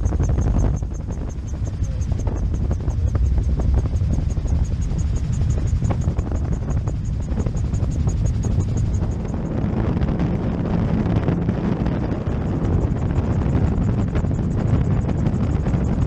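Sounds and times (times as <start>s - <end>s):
low drone of rotor and engine: 0.0s - 16.0s
wind rushing over microphone: 0.0s - 16.0s.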